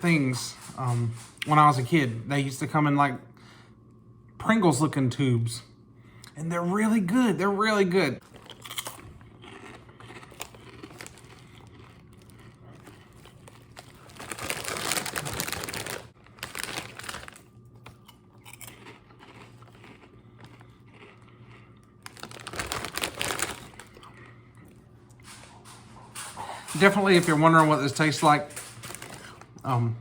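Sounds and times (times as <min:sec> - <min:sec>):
foil chip bag crinkling: 0:08.2 - 0:24.4, 0:26.7 - 0:29.8.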